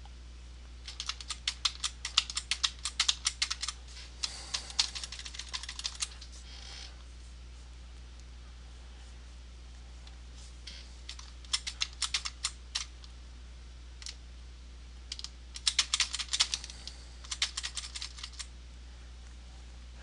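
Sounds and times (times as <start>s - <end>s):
computer keyboard clicks: 0.9s - 3.8s, 4.6s - 6.1s, 11.1s - 12.9s, 15.1s - 18.5s.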